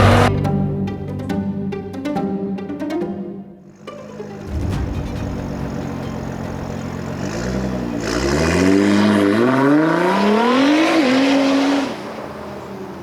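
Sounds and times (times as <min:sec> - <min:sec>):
car engine accelerating hard: 0:00.0 - 0:00.3, 0:03.8 - 0:13.0.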